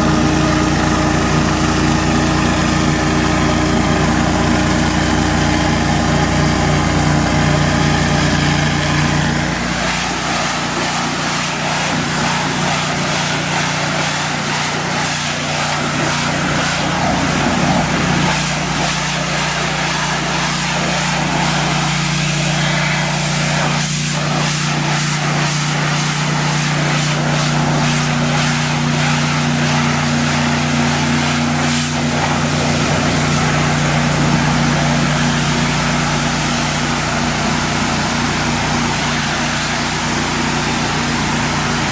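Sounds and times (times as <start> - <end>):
pressure washer engine running: 0.0 - 41.9.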